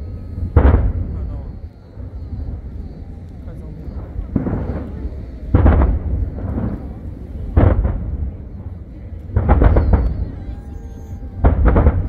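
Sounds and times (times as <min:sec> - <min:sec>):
firework shells bursting: 0:03.2 - 0:08.5.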